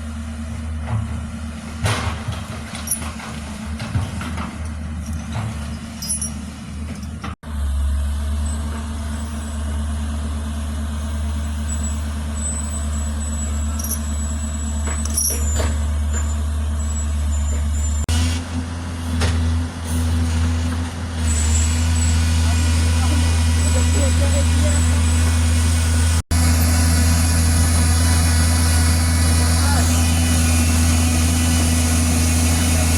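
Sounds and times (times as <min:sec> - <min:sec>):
heavy diesel engine running: 0:00.0 - 0:32.9
metallic clanks: 0:00.8 - 0:07.4, 0:13.3 - 0:18.0.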